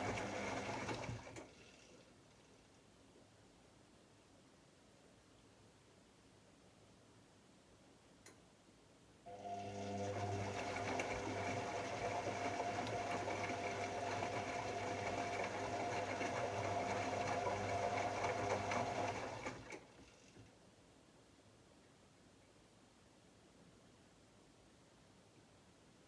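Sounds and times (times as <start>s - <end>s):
washing machine motor humming: 0.0s - 1.5s, 9.3s - 19.9s.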